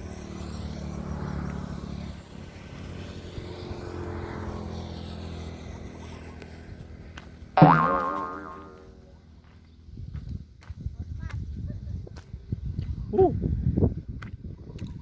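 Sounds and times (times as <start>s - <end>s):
engine humming: 0.0s - 9.8s.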